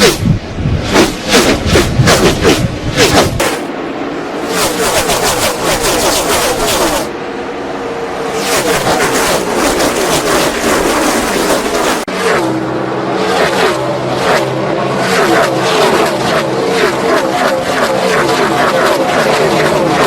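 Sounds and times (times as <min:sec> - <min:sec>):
race cars passing at speed: 0:00.0 - 0:20.0.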